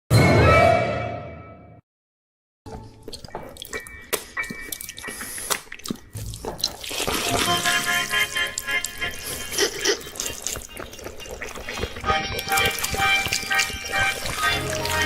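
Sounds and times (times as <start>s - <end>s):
wet dripping and clicking: 3.1s - 15.0s.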